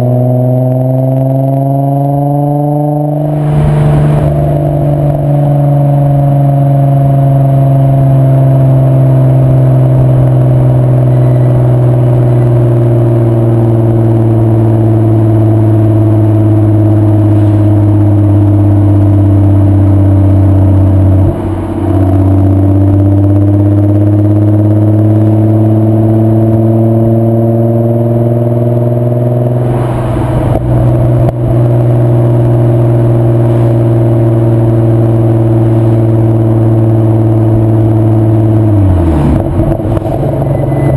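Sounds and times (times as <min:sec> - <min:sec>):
car engine and exhaust: 0:00.0 - 0:40.9.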